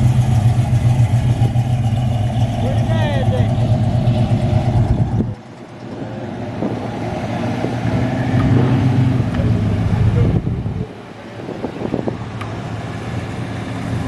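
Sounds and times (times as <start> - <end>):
car engine running: 0.0 - 7.4
vehicle engine approaching: 0.0 - 14.0.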